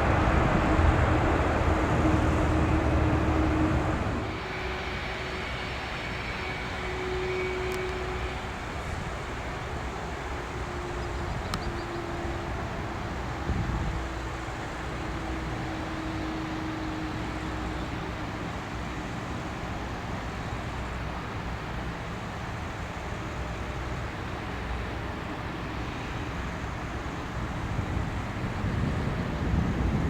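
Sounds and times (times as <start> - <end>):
jet engines humming: 0.0 - 30.0
wind buffeting microphone: 11.0 - 14.5, 27.3 - 30.0.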